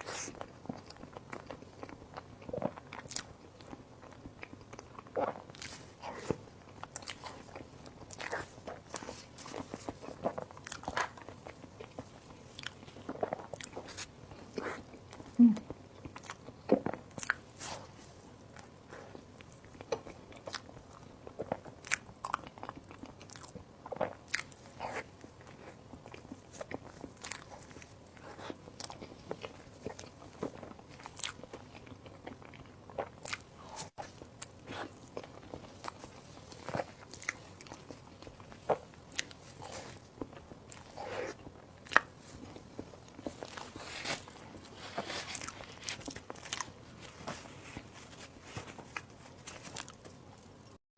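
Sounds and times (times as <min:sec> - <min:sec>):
person biting and chewing: 0:26.1 - 0:46.8.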